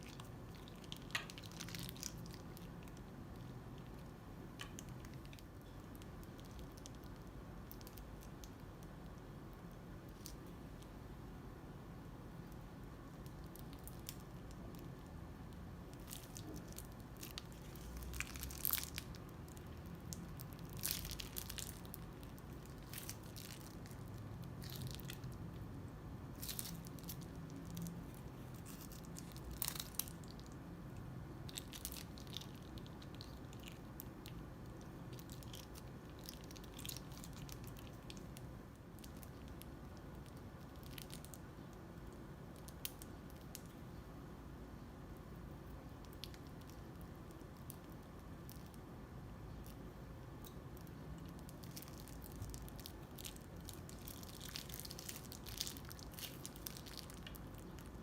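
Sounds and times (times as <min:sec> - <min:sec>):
slime crackling and popping: 0:00.0 - 0:11.0, 0:12.4 - 0:43.8, 0:45.8 - 0:48.9, 0:49.5 - 0:58.0
crunchy slime squeezed by hand: 0:16.0 - 0:25.5, 0:26.3 - 0:30.6, 0:51.4 - 0:58.0.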